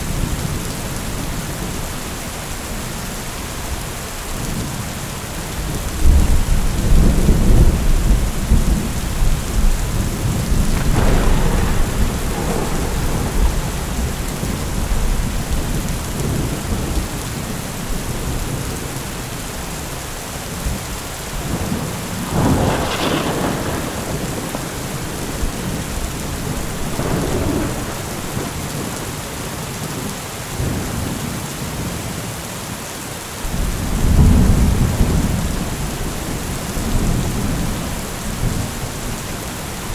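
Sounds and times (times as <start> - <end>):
heavy rain falling: 0.0 - 39.9
rolling thunder: 5.6 - 19.2, 20.6 - 29.4, 33.5 - 39.9
sharp thunder crack: 6.9 - 17.0, 21.4 - 29.0.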